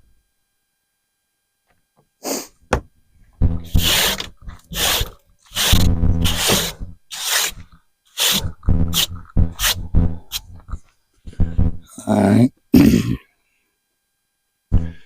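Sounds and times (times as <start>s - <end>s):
plastic container scraping on ground: 3.6s - 7.6s.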